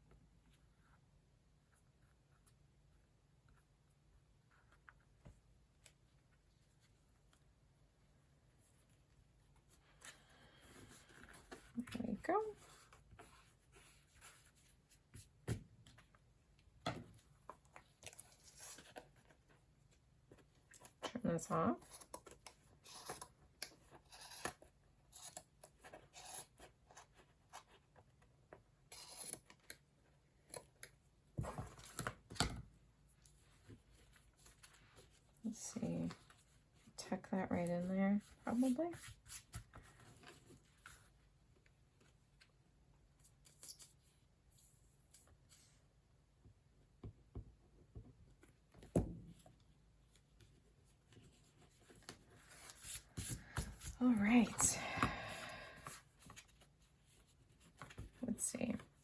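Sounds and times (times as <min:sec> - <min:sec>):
book and fabric handling: 0:04.4 - 0:24.7, 0:31.2 - 0:42.5, 0:48.3 - 0:59.0.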